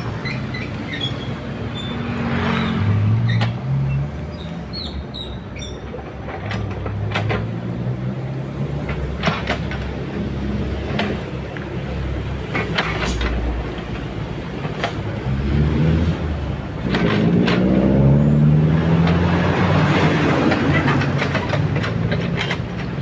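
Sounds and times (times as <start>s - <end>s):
metallic clanks of tracks and bucket: 0.0s - 7.8s, 8.7s - 11.7s, 12.3s - 15.2s, 16.1s - 18.1s, 18.7s - 23.0s
excavator diesel engine: 0.0s - 23.0s.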